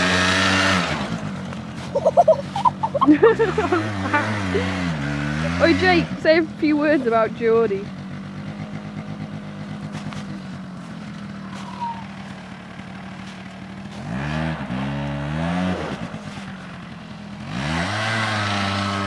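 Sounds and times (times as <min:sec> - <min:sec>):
quad bike engine revving: 0:00.0 - 0:19.0.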